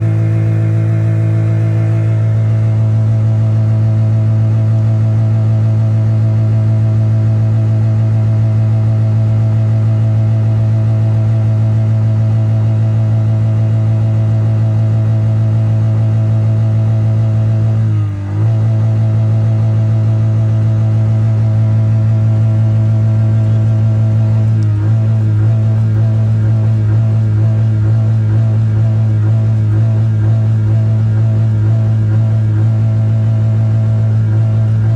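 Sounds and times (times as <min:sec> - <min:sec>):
car engine revving high: 0:00.0 - 0:04.1.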